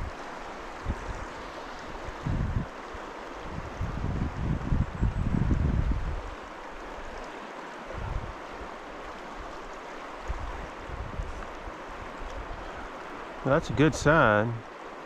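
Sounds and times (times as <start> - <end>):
wind buffeting on microphone: 0.0 - 6.4, 7.9 - 8.8, 10.2 - 14.7
creek water rushing: 0.0 - 15.0.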